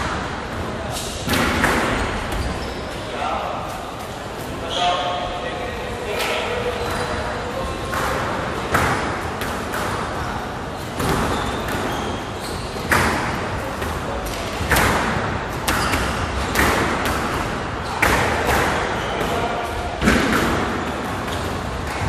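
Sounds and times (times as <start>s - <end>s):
squash ball hitting rackets and walls: 0.0s - 2.6s, 7.7s - 22.0s.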